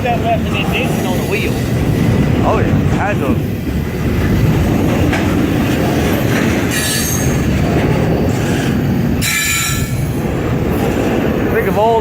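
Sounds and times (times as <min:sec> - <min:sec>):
train wheels rumbling on rails: 0:00.0 - 0:12.0
high wheel squeal: 0:06.7 - 0:07.5, 0:09.2 - 0:10.1.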